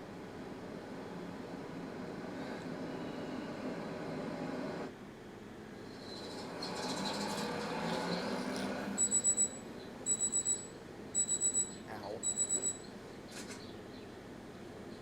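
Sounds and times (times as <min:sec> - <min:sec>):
steady background noise: 0:00.0 - 0:15.0
alarm clock beeping: 0:09.0 - 0:12.9.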